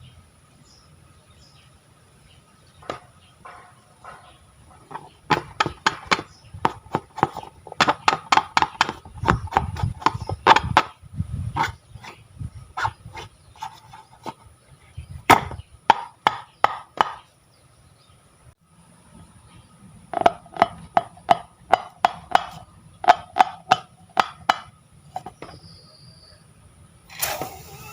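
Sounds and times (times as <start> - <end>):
sharp taps and clicks: 4.9 - 10.9.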